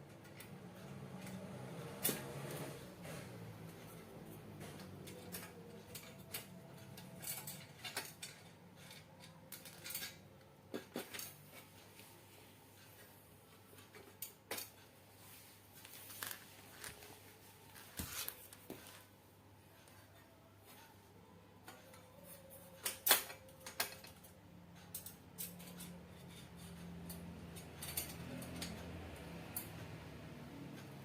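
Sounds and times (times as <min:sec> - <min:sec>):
metal parts and tools clinking: 0:00.2 - 0:11.8, 0:21.6 - 0:29.8.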